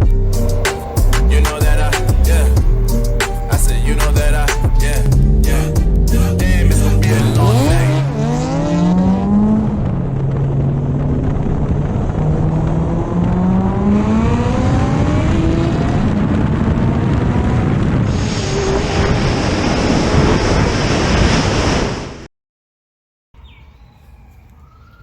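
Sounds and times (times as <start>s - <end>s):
rushing noise with high whine: 0.0s - 22.3s
motorcycle engine accelerating through gears: 4.1s - 19.0s.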